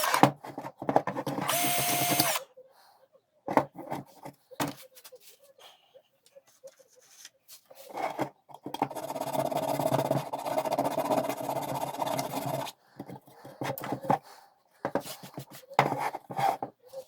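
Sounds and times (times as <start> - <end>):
small power tool running: 1.4 - 2.4.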